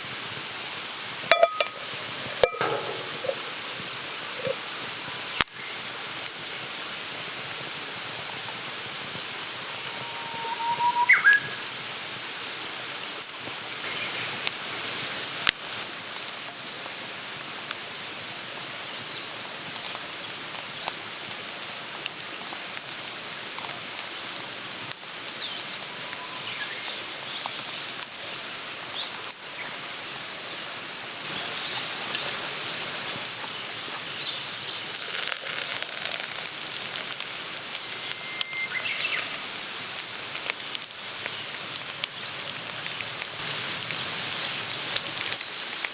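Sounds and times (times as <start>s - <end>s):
campfire hiss: 0.0s - 45.9s
campfire crackling and popping: 0.8s - 10.1s, 12.8s - 30.3s, 31.2s - 45.9s
faint whistle from burning wood: 9.7s - 11.8s, 25.2s - 27.6s, 36.6s - 39.8s.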